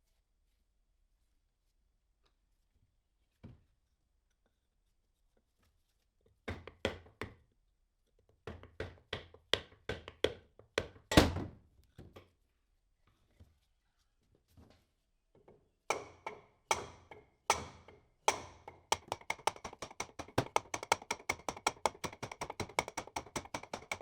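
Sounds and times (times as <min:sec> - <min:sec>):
sharp knocks: 0:15.9 - 0:24.0.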